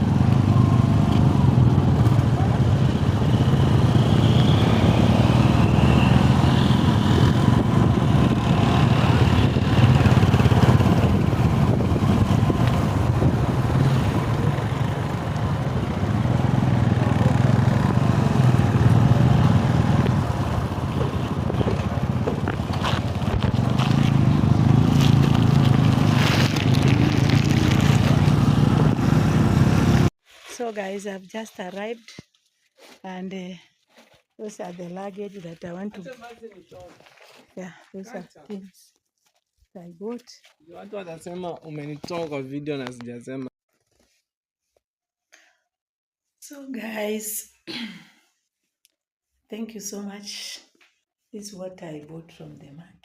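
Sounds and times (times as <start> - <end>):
motorcycle engine running: 0.0 - 30.1
road noise: 0.0 - 30.2.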